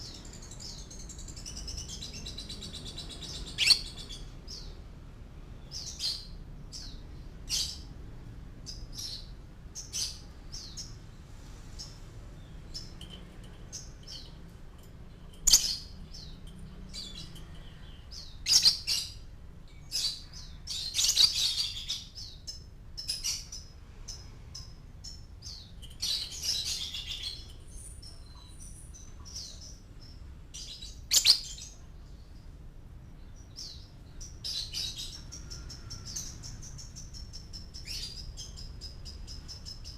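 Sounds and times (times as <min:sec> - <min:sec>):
lovebird chirping and twittering: 0:00.0 - 0:04.8, 0:15.2 - 0:32.4, 0:33.3 - 0:39.9.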